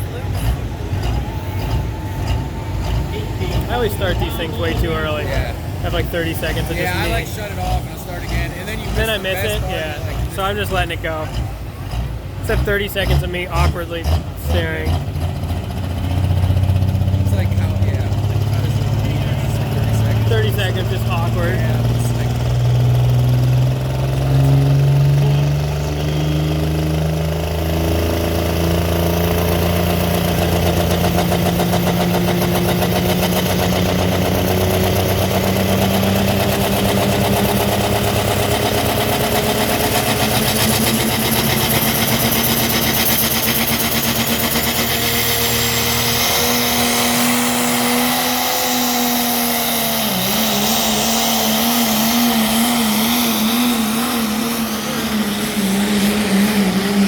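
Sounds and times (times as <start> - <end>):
diesel truck engine under load: 0.0 - 57.0.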